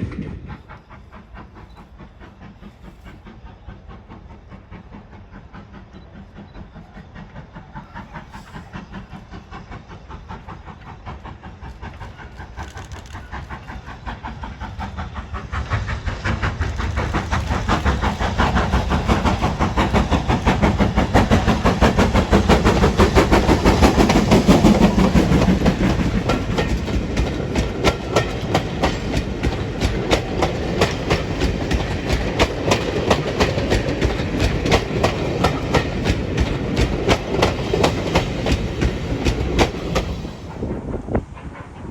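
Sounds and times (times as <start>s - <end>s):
steam locomotive beats: 0.0s - 41.9s
wheels clacking over rail joints: 10.4s - 40.6s.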